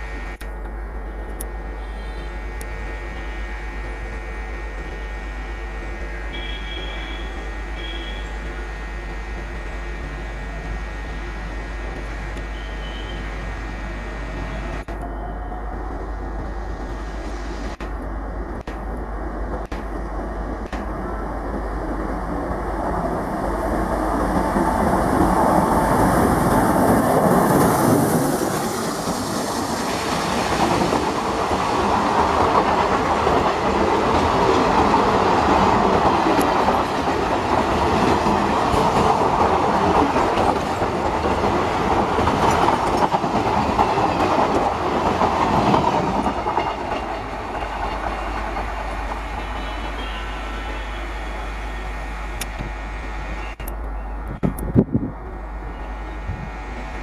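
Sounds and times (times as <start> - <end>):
train wheels clattering over rails: 22.9 - 50.1.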